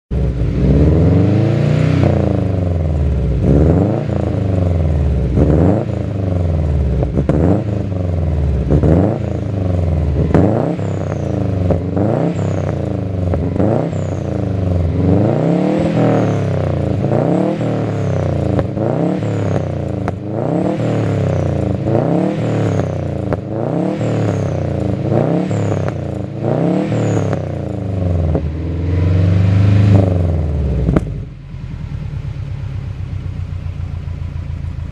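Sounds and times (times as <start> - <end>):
car engine revving: 0.1 - 34.9.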